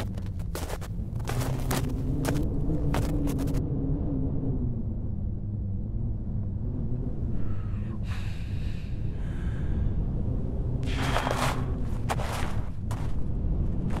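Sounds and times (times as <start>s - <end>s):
breathy rush of noise: 7.3s - 10.2s.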